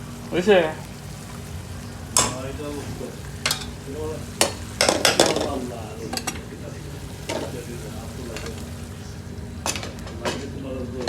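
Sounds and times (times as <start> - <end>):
low kitchen hum: 0.0 - 11.0.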